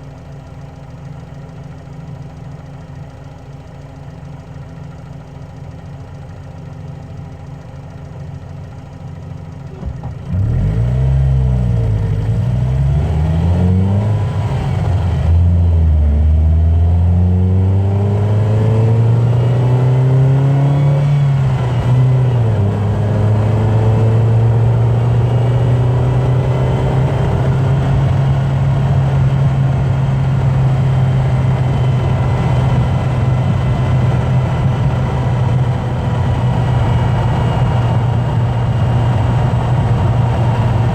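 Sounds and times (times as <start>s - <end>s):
car engine accelerating through gears: 9.7s - 40.9s.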